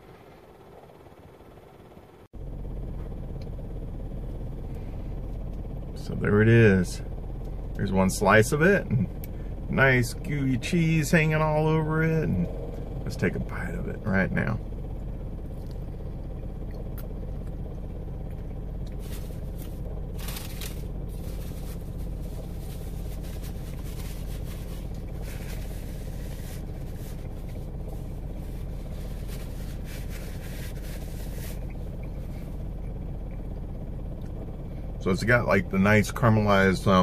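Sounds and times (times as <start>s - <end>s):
car engine idling: 0.0s - 37.0s
chewing and handling pizza: 16.6s - 33.4s.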